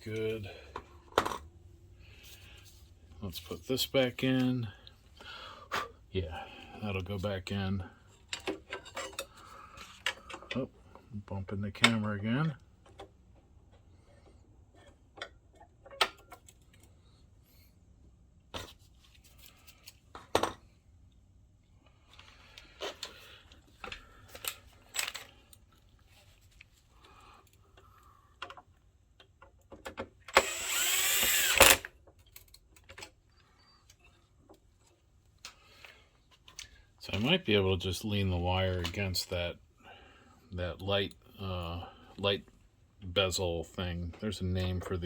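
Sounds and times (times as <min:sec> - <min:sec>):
small parts and tools clicking: 0:22.1 - 0:25.9, 0:26.6 - 0:36.8
power screwdriver whirring: 0:30.3 - 0:31.9.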